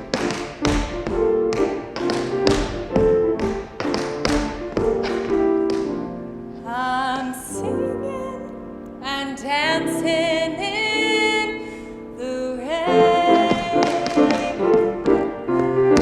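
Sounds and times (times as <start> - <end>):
piano accompaniment: 0.0 - 16.0
woman singing with vibrato: 6.7 - 14.8.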